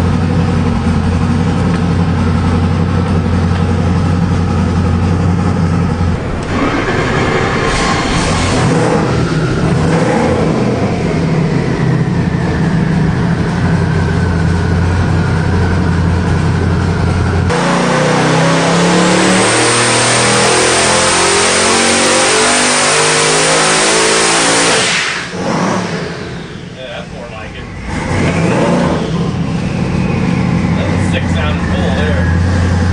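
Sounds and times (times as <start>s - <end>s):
high turbo whine: 0.0s - 32.9s
engine revving on a dyno: 3.8s - 26.8s, 27.4s - 32.9s.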